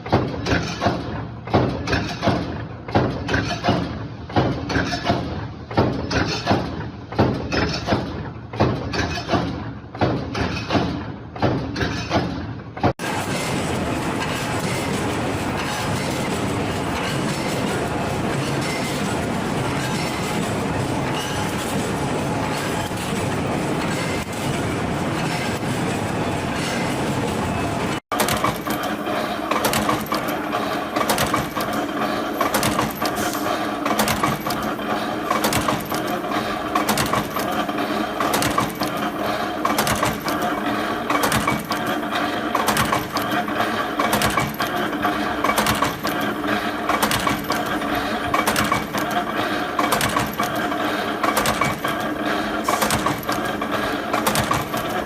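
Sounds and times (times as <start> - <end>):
metallic clicking and clinking: 28.1 - 55.0.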